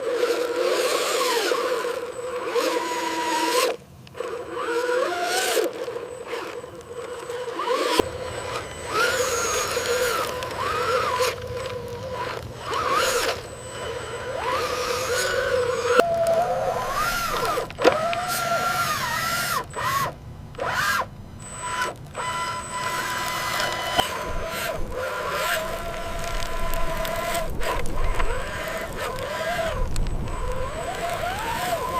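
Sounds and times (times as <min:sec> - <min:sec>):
toy truck electric motors whining: 0:00.0 - 0:31.9
sharp click: 0:22.8 - 0:25.0.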